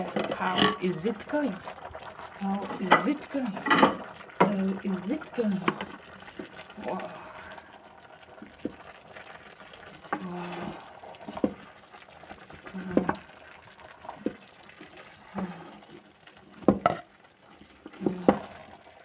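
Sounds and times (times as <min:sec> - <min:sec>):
spoon scraping cooking pot: 0:00.0 - 0:01.2.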